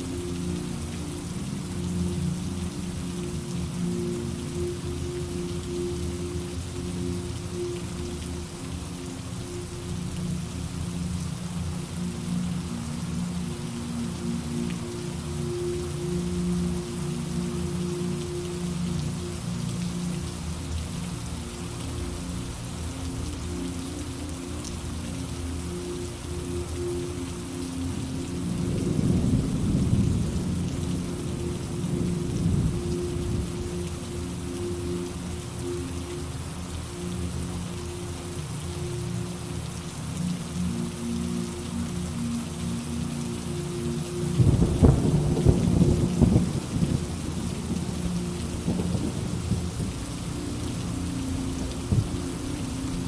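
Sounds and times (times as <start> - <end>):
steady rain falling: 0.0 - 53.0
low rumble of thunder: 28.8 - 33.6, 44.4 - 50.0.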